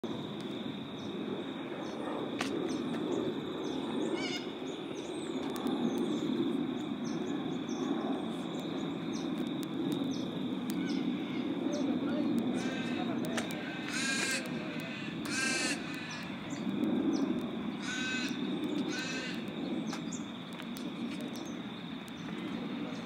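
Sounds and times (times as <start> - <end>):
low outdoor noise: 0.0 - 23.0
bird calls: 12.5 - 20.3.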